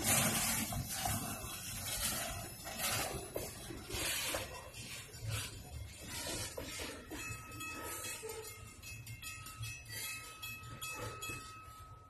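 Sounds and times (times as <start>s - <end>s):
freight train wheels clicking: 0.0s - 12.0s
railroad crossing bell ringing: 6.4s - 12.0s.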